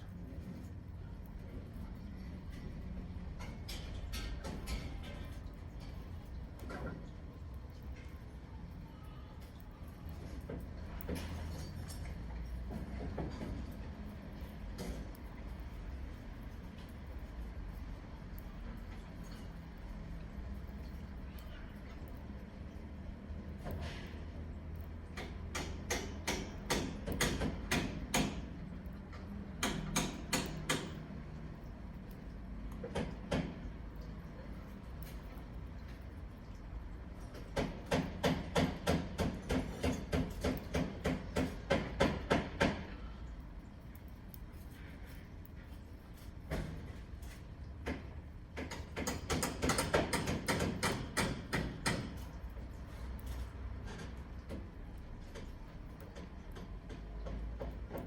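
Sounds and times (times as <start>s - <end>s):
canary pecking at food: 43.4s - 47.2s.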